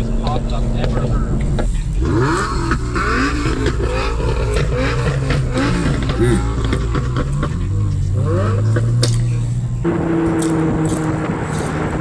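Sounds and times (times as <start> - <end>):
car engine revving: 0.0 - 12.0
exhaust pops: 0.0 - 12.0.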